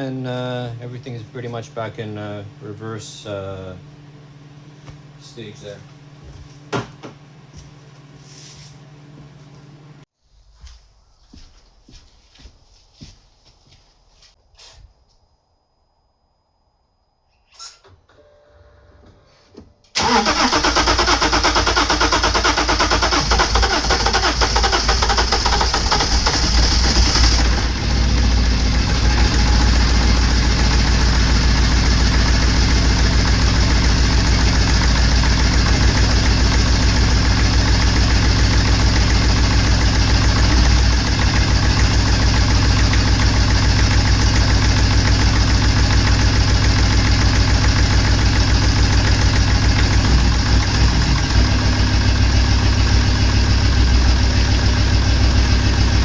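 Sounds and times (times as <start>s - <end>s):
diesel engine starting and idling: 19.9s - 56.0s.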